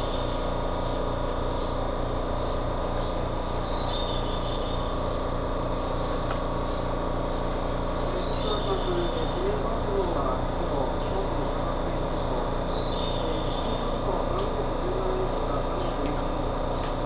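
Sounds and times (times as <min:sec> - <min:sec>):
train motor hum: 0:04.5 - 0:17.0.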